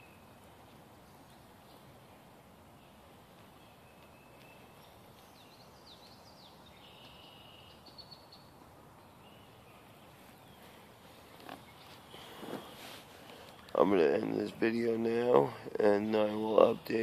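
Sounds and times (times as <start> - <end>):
woodland hiss: 0.0 - 17.0
birds calling and whistling: 2.7 - 17.0.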